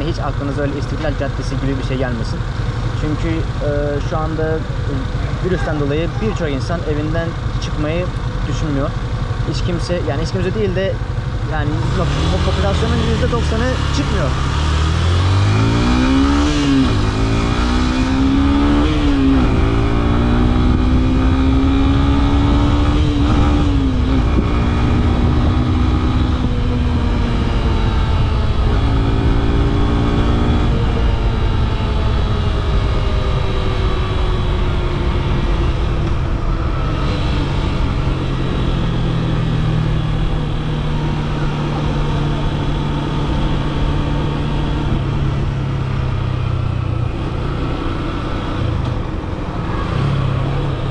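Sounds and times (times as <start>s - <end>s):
motorcycle engine accelerating: 0.0s - 50.9s
wind and road noise: 0.0s - 50.9s.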